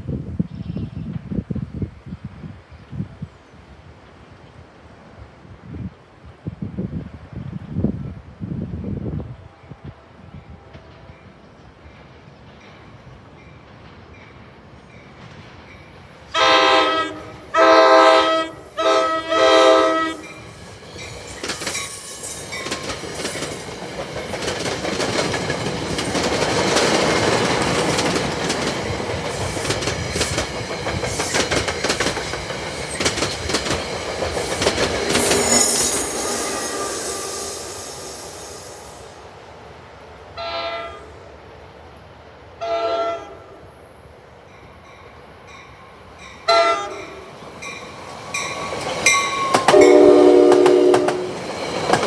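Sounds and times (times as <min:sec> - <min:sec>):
electric locomotive passing: 0:06.8 - 0:52.0
train horn: 0:16.3 - 0:20.4, 0:40.4 - 0:41.2, 0:42.6 - 0:43.6, 0:46.4 - 0:47.3, 0:49.4 - 0:51.4
train wheels clattering on rails: 0:20.2 - 0:37.5, 0:47.3 - 0:52.0.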